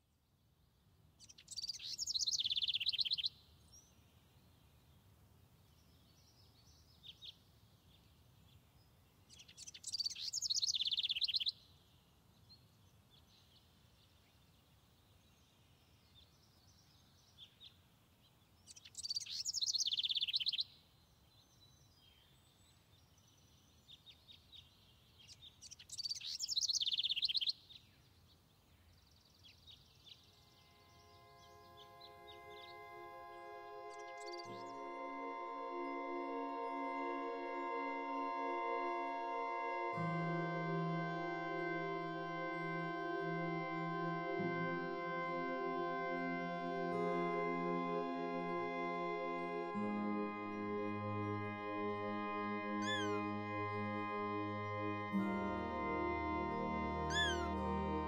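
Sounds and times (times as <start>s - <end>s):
low background noise: 0.0s - 58.0s
songbird trilled song: 1.2s - 4.0s, 9.3s - 11.6s, 18.6s - 28.0s, 52.8s - 53.2s, 57.1s - 57.5s
faint bird chirps: 1.2s - 4.1s, 5.8s - 11.6s, 18.6s - 27.9s, 52.8s - 53.2s, 57.1s - 57.5s.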